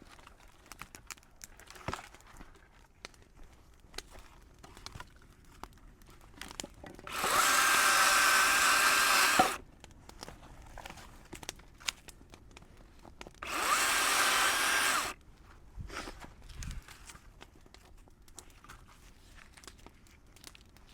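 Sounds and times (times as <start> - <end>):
power tool motor whine: 7.1 - 9.6, 13.4 - 15.2.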